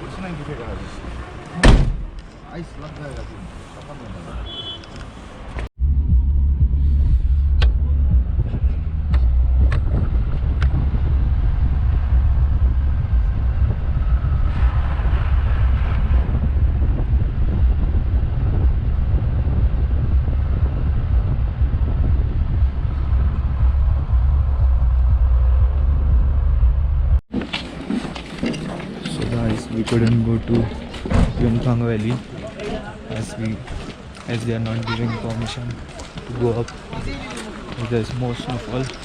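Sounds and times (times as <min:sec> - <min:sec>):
car driving rumble inside cabin: 0:05.8 - 0:27.2.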